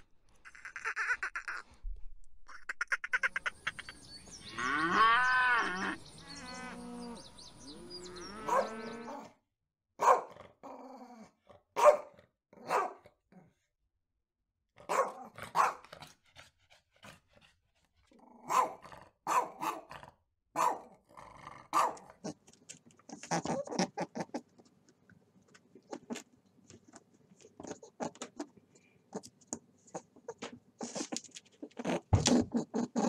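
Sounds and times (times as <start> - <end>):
small dog barking: 8.4 - 9.3, 10.0 - 10.4, 11.8 - 13.0, 14.8 - 15.9, 18.4 - 20.0, 20.6 - 20.9, 21.7 - 22.1.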